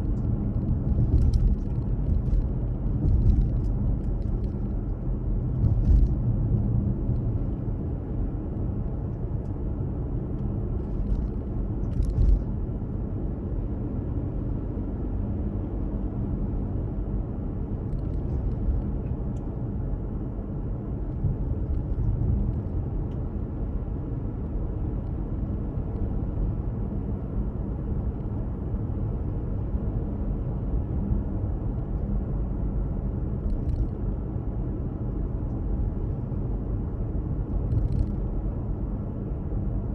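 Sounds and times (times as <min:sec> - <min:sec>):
car driving: 0:00.0 - 0:14.8.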